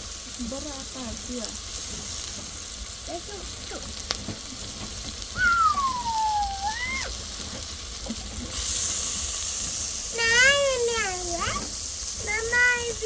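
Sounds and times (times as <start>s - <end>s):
steady hiss: 0.0s - 13.0s
small animal whining call: 5.3s - 7.2s.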